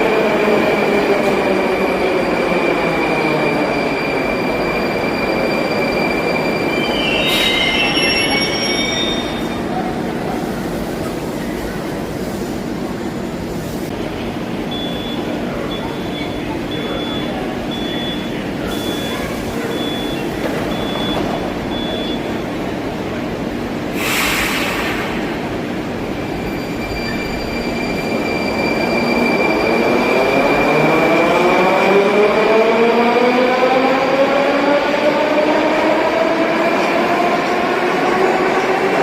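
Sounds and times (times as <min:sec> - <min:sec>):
short high beeps: 0:04.8 - 0:09.6, 0:14.7 - 0:22.4
sharp hiss of air: 0:23.9 - 0:25.4.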